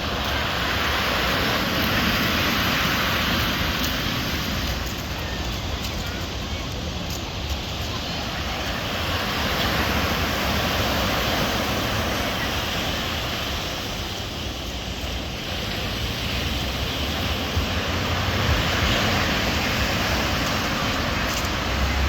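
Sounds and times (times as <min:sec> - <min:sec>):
waves breaking: 0:00.0 - 0:22.0.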